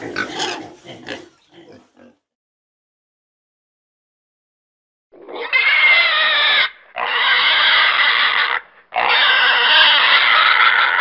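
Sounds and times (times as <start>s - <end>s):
pig squealing: 0.0s - 2.2s, 5.2s - 11.0s.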